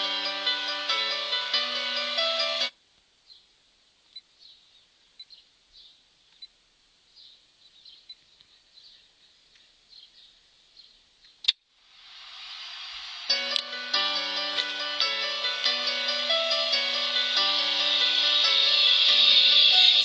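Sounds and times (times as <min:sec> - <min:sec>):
car stereo music: 0:00.0 - 0:02.8, 0:12.6 - 0:20.0.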